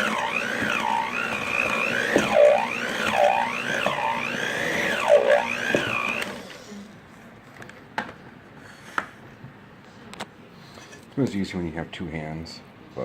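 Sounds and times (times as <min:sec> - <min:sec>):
electric mixer motor whine: 0:00.0 - 0:06.6.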